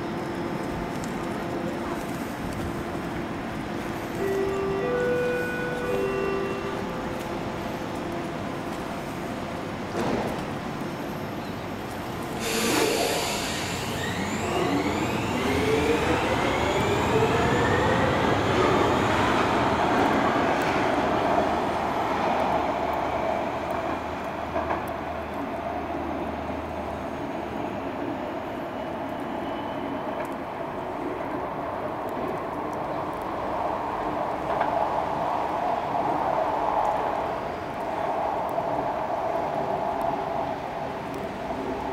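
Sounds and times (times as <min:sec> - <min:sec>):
metro train motors whining: 0:00.9 - 0:09.1, 0:12.0 - 0:22.2.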